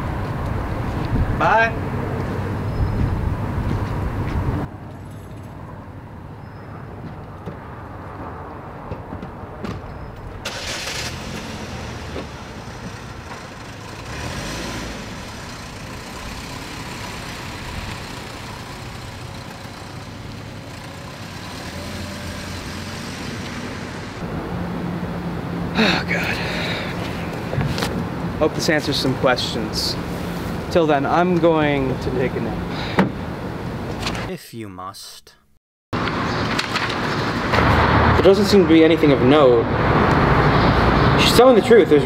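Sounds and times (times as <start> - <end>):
car engine starting and running: 10.4 - 28.4.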